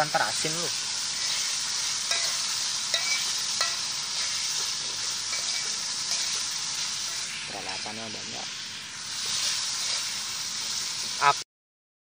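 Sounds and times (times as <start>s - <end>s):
shrimp sizzling in a pan: 0.0s - 11.4s.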